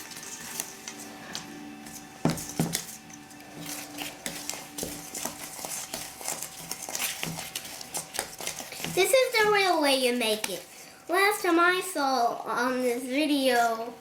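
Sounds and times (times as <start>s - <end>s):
spoon stirring batter in bowl: 0.0s - 9.6s.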